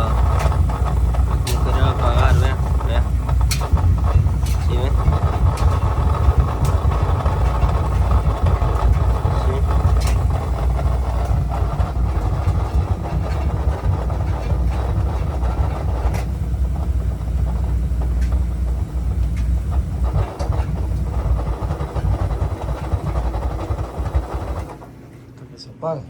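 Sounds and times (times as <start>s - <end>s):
boiler burner low rumble: 0.0s - 26.0s.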